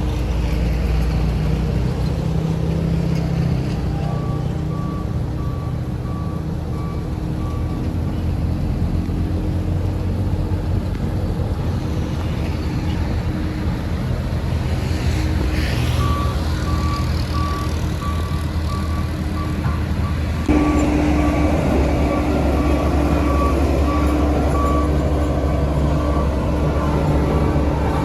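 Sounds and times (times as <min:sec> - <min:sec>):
diesel engine of heavy machinery: 0:00.0 - 0:28.0
reversing alarm beeping: 0:04.1 - 0:07.8, 0:15.9 - 0:28.0.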